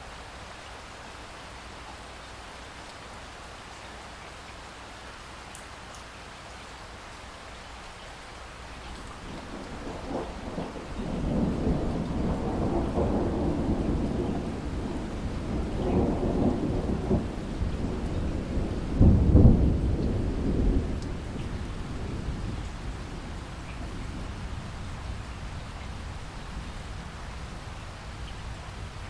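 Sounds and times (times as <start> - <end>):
rain falling: 0.0 - 29.0
thunder rolling: 9.1 - 27.1.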